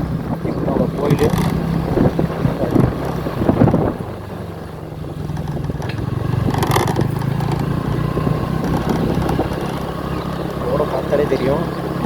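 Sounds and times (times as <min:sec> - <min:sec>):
scooter engine running: 0:00.0 - 0:12.0
wind on microphone: 0:00.0 - 0:12.0.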